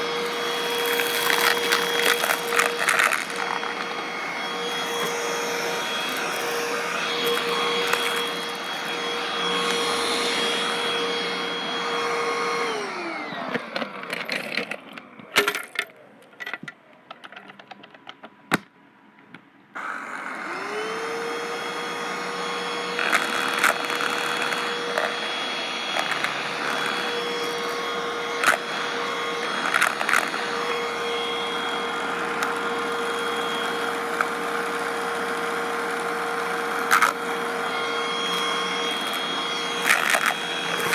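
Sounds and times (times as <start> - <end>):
vacuum cleaner motor whine: 0.0 - 15.7, 19.8 - 40.9
debris crackling in vacuum: 0.1 - 8.8.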